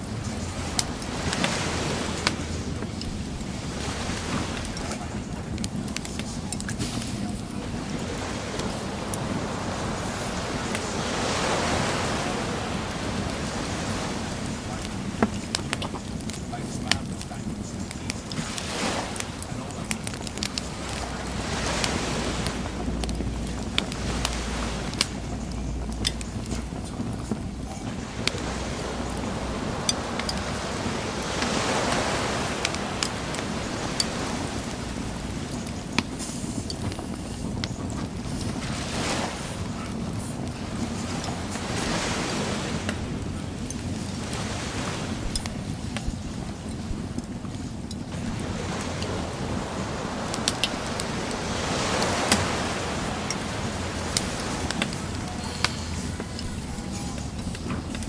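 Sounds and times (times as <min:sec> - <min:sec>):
bonfire crackling: 0:00.0 - 0:58.0
ocean surf: 0:00.0 - 0:58.0
waves washing on a beach: 0:00.0 - 0:58.0.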